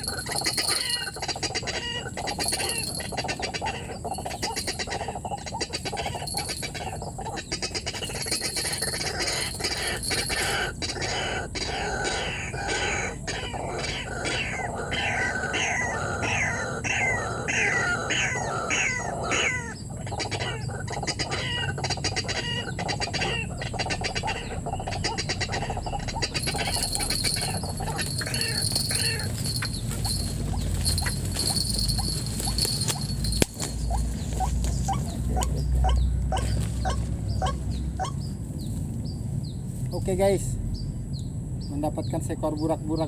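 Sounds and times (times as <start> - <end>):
waterhen calling: 0.0 - 38.2
rustling handling noise: 26.4 - 35.3.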